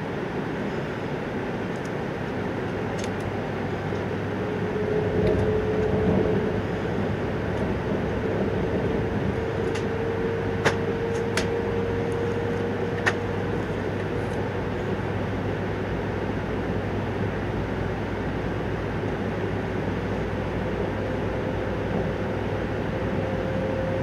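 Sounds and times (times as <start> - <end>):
train interior rumble and hiss: 0.0 - 24.0
low hum: 0.6 - 17.2.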